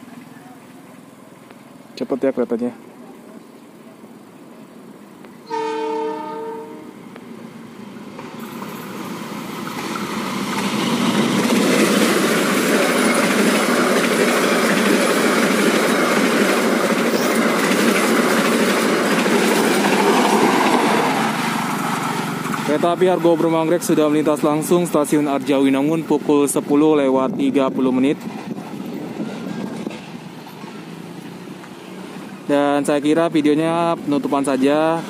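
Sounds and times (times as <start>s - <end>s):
train wheels rushing on rail: 2.6s - 35.0s
train horn: 5.4s - 7.0s.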